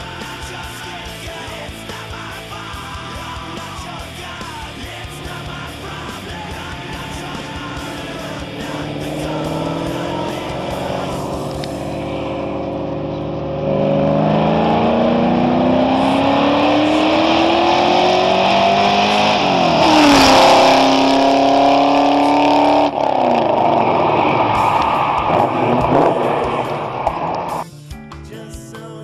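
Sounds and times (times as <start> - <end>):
car engine accelerating past: 6.0 - 27.6.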